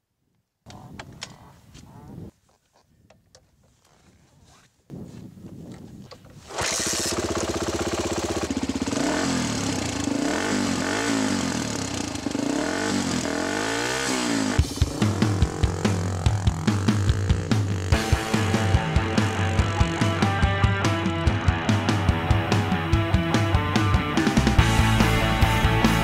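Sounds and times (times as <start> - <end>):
dirt bike engine starting and revving: 6.3 - 26.0
steady low beat: 14.6 - 26.0.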